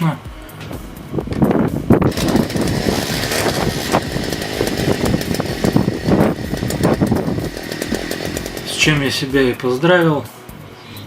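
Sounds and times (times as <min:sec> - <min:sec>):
two-stroke engine running: 0:02.0 - 0:09.6.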